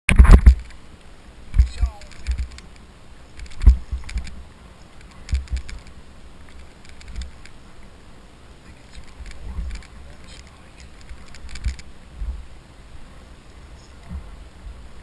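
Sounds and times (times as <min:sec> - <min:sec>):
knocks and rattles: 0:05.2 - 0:05.9.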